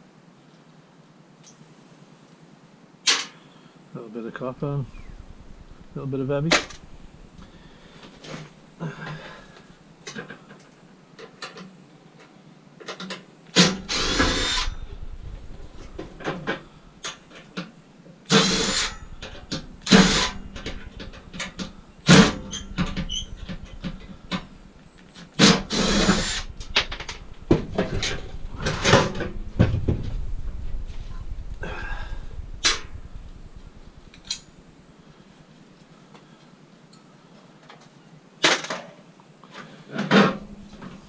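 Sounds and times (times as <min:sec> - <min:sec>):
power drill whining: 0:13.6 - 0:14.8, 0:18.3 - 0:20.8, 0:25.4 - 0:27.2.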